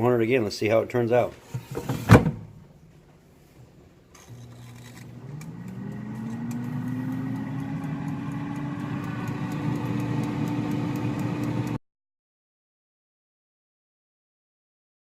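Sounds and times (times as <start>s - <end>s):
air fryer fan humming: 4.2s - 11.8s.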